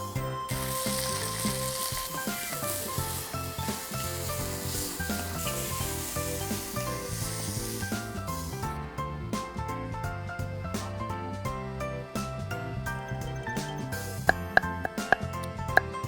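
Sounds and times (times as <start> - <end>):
background music: 0.0 - 16.0
food sizzling in hot oil: 0.1 - 8.8.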